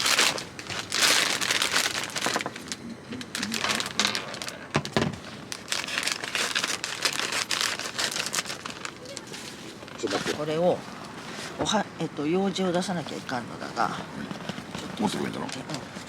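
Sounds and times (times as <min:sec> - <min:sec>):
plastic wrapping crinkling: 0:00.0 - 0:10.6.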